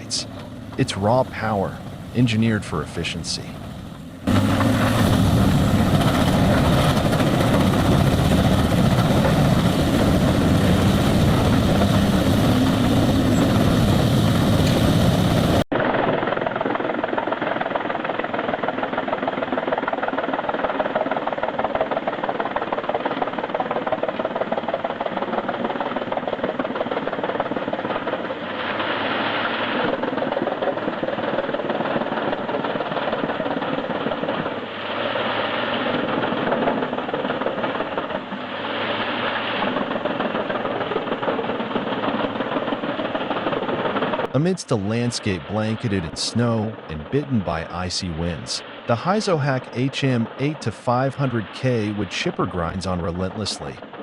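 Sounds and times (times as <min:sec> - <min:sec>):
wood-chipping machinery running: 0:03.6 - 0:16.1.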